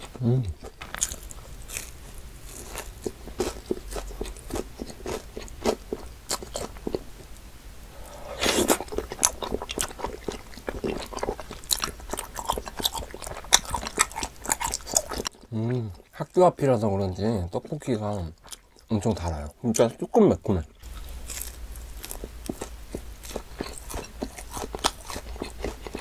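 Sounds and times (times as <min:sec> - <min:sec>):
crunching fried cutlet: 0:00.6 - 0:07.1, 0:08.4 - 0:15.5, 0:20.8 - 0:26.0.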